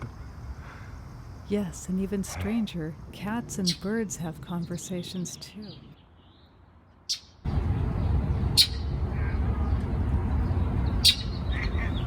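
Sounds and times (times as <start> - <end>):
small birds chirping: 0.2 - 12.0
loud steady low rumble: 7.5 - 12.0.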